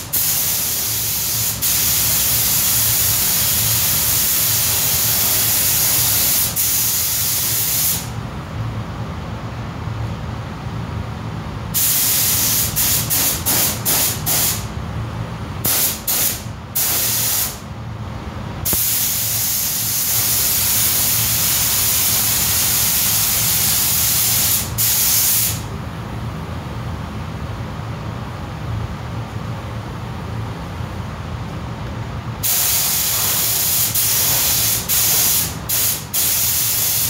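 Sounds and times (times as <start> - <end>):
paint spray gun spraying: 0.1 - 8.1, 11.8 - 14.6, 15.7 - 17.6, 18.7 - 25.6, 32.4 - 37.0.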